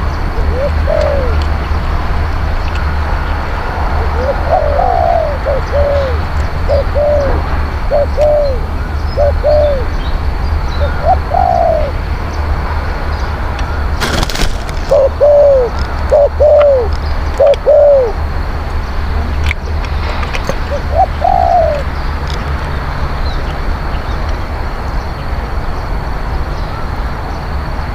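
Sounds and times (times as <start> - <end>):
dove cooing: 0.0 - 1.4, 4.0 - 10.0, 10.8 - 12.0, 14.4 - 18.2, 20.6 - 21.9.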